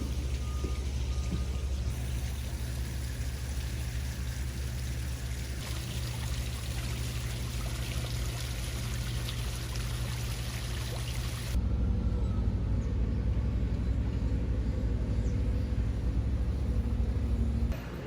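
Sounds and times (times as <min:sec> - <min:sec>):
low steady hum: 0:00.0 - 0:17.8
water pouring: 0:01.8 - 0:11.6.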